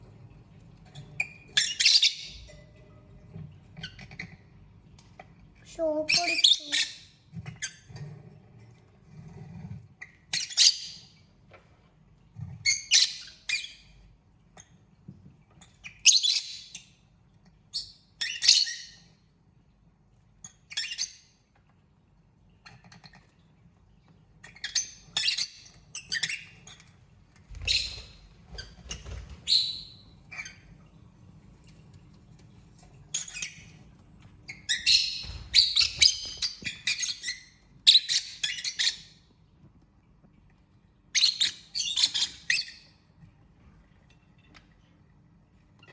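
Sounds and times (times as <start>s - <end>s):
lovebirds chirping and squawking: 1.0s - 2.6s, 6.0s - 7.9s, 10.0s - 11.2s, 12.6s - 14.0s, 15.8s - 16.9s, 17.7s - 19.1s, 24.4s - 30.8s, 34.4s - 39.3s, 41.1s - 43.0s.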